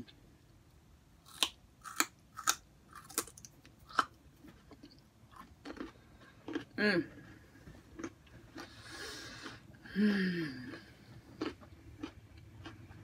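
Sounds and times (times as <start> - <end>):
crunching of raw vegetables: 1.2 - 6.8.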